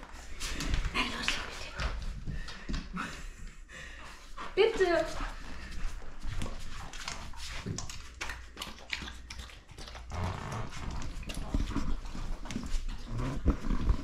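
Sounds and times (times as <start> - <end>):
dog chewing and licking: 4.4 - 14.0.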